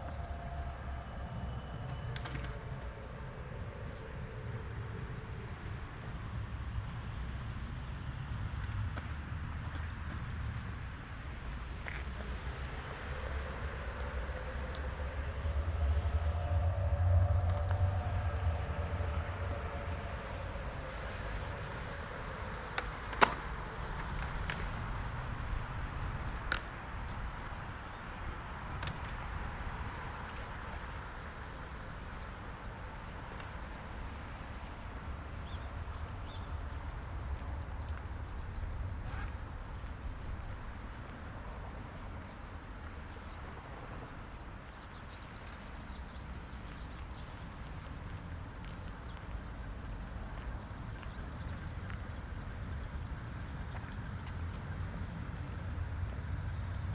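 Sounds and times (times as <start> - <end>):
tram rumbling past: 0.0 - 7.7, 10.8 - 42.8
faint tram whine: 0.0 - 56.9.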